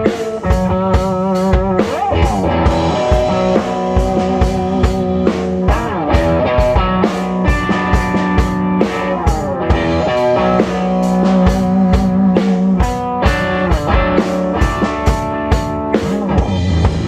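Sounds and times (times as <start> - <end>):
drum kit rock beat: 0.0 - 17.0
sustained electric guitar notes: 0.0 - 17.0.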